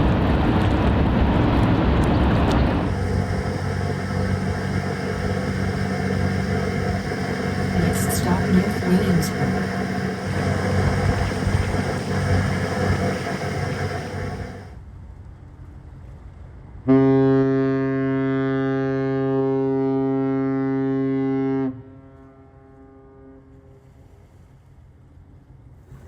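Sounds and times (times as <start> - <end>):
ship's horn blast: 0.0 - 14.7, 16.8 - 23.8
loud mixed noise: 2.3 - 14.7.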